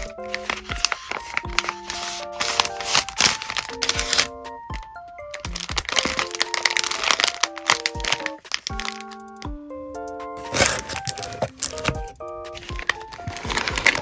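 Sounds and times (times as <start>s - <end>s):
plucked melody: 0.0s - 14.0s
plastic wrapping crinkling: 5.6s - 9.1s, 10.4s - 14.0s.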